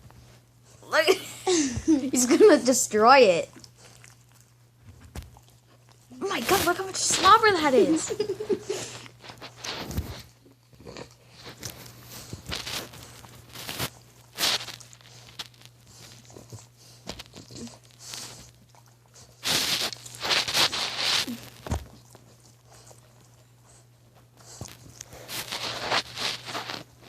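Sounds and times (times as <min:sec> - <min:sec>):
dog chewing on a toy: 0:03.2 - 0:06.8, 0:08.9 - 0:27.0.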